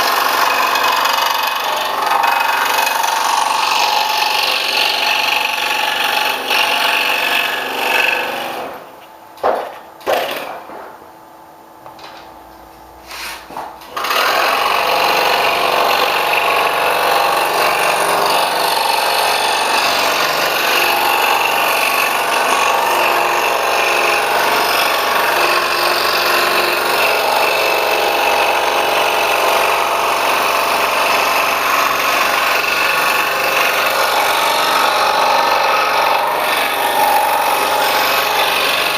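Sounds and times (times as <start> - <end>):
scroll saw cutting wood: 0.0 - 8.9, 13.0 - 38.9
knocks: 9.4 - 11.1.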